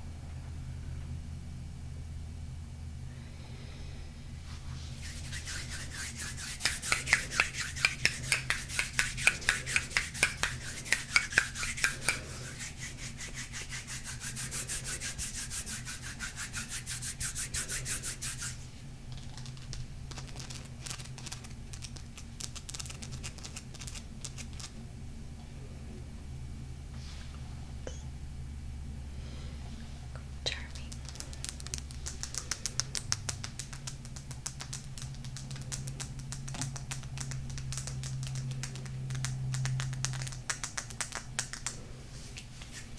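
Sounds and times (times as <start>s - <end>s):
scratching on stone: 5.0s - 18.6s.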